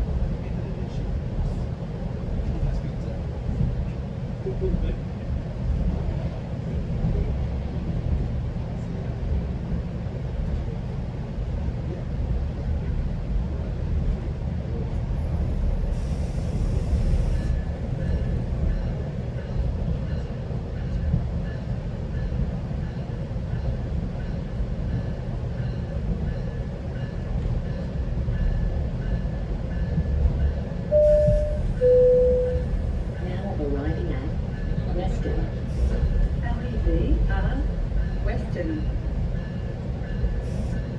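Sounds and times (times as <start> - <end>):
train rumbling on track: 0.0 - 40.9
two-note falling chime: 30.9 - 32.7.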